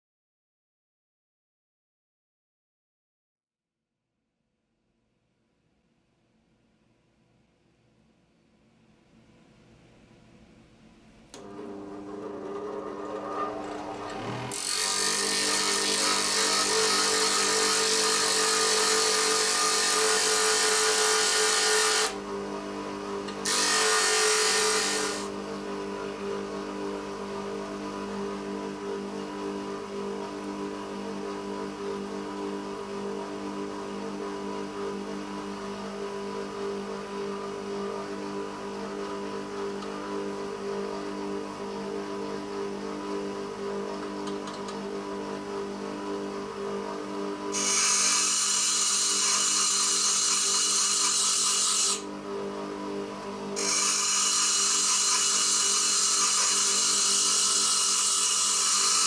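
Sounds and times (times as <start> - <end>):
grinder motor idling: 11.3 - 26.3
grinder grinding drill bit: 11.6 - 22.2, 23.4 - 25.3, 47.5 - 52.0, 53.6 - 59.0.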